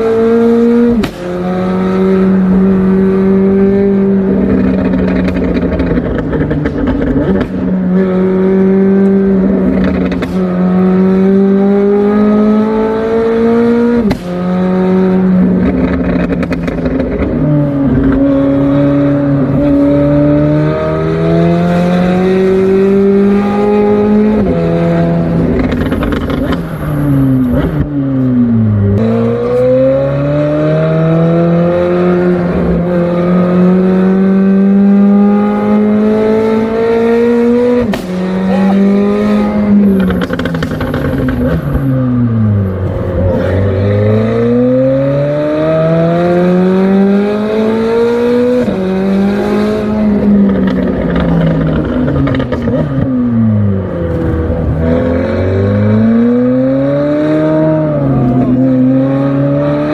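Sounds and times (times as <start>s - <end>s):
car engine accelerating: 0.0s - 59.9s
exhaust crack: 0.9s - 3.0s, 4.2s - 8.2s, 9.0s - 11.0s, 13.9s - 20.2s, 23.3s - 29.6s, 37.4s - 44.6s, 49.5s - 56.3s.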